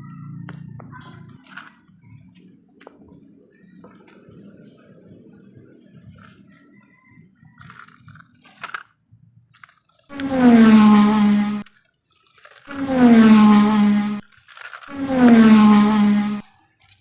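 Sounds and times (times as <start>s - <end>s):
low buzzy tone: 10.1s - 11.7s, 12.7s - 14.2s, 14.9s - 16.5s.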